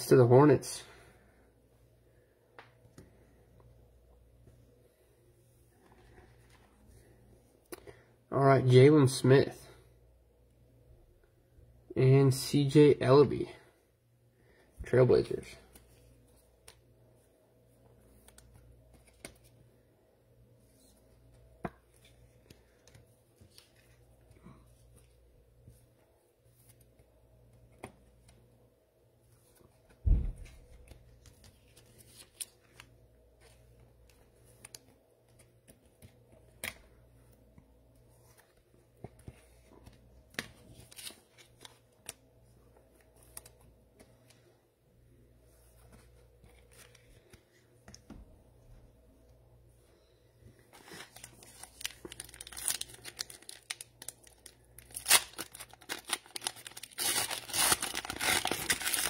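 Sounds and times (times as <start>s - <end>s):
loud thump: 30.0s - 30.6s
trading cards rustling and clicking: 50.7s - 59.0s.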